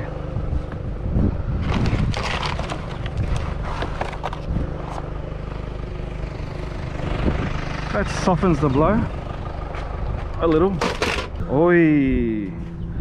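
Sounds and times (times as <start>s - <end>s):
vehicle engine idling: 0.0s - 13.0s
scrap items rustling and clattering: 1.6s - 5.1s, 10.8s - 11.4s.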